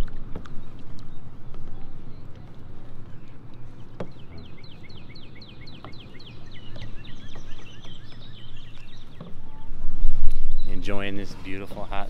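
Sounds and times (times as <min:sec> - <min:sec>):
low steady rumble: 0:00.0 - 0:12.0
songbird singing a fast trill: 0:04.0 - 0:11.2.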